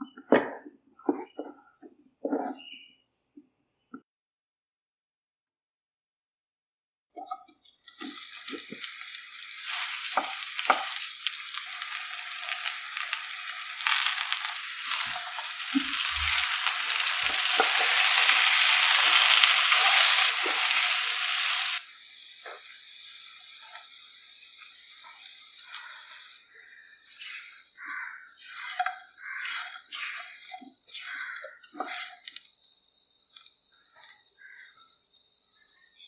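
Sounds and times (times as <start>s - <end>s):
food sizzling in hot oil: 7.2s - 36.0s
spatula scraping pan: 13.8s - 21.8s, 27.1s - 32.3s.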